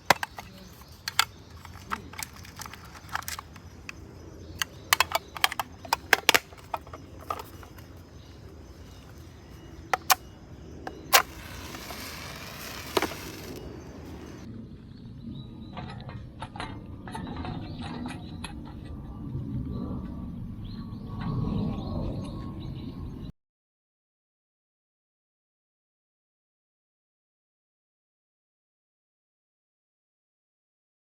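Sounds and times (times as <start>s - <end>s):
hard objects clicking and knocking: 0.0s - 4.0s, 4.6s - 10.3s, 10.9s - 14.4s
rustling hiss: 10.9s - 14.5s.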